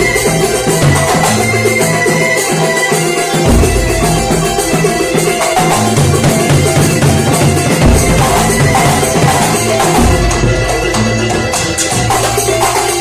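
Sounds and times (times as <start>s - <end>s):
hand drums and jingles: 0.0s - 13.0s
deep bass drum tones: 3.4s - 12.2s.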